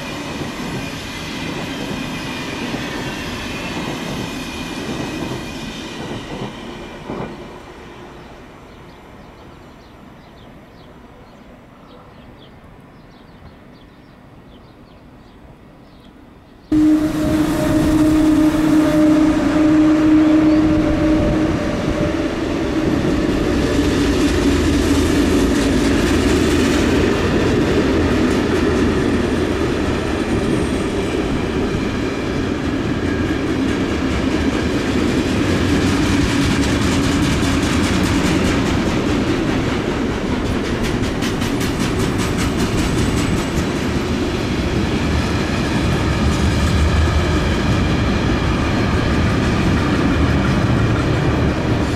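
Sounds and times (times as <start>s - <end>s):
train wheels rumbling on rails: 0.0s - 11.4s, 16.7s - 51.9s
steady tone: 16.7s - 23.4s.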